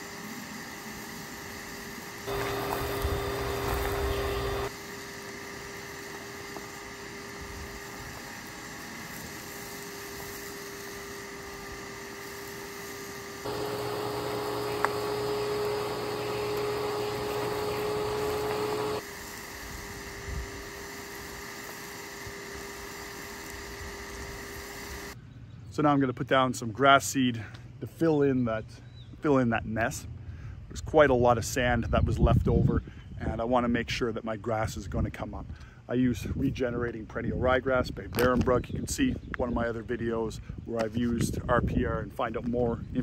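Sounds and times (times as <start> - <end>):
vacuum motor humming: 0.0 - 25.2
vacuum sucking up grit: 0.0 - 25.2.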